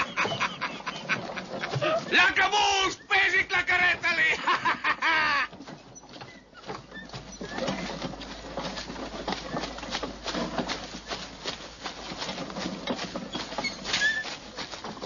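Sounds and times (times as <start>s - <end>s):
man laughing cry: 0.0s - 2.1s, 4.0s - 5.6s
birds calling: 0.0s - 2.2s
light rustling: 5.1s - 15.0s.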